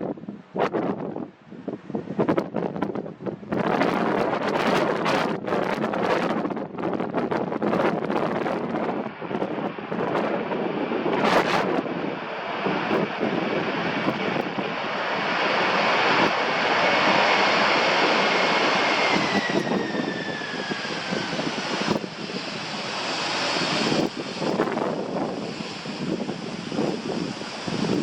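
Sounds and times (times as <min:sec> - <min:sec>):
jet engine rush and whine: 0:00.0 - 0:28.0
wind buffeting microphone: 0:00.0 - 0:28.0.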